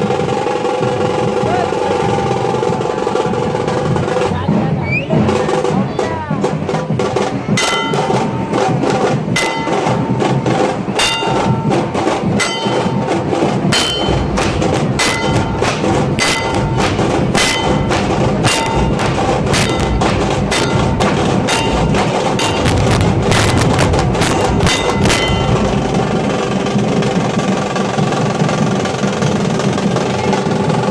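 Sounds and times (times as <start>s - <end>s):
fast drumming ensemble: 0.0s - 30.9s
ringing metallic strikes: 7.5s - 29.2s.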